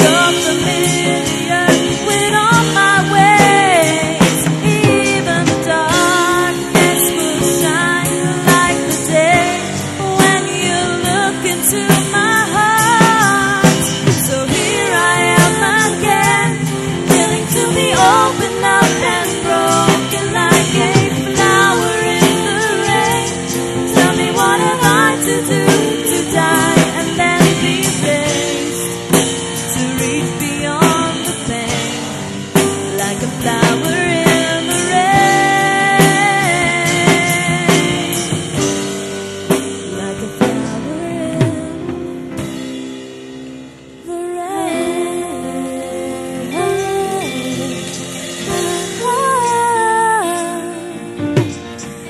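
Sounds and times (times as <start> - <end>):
pop-rock song with female vocal: 0.0 - 52.0.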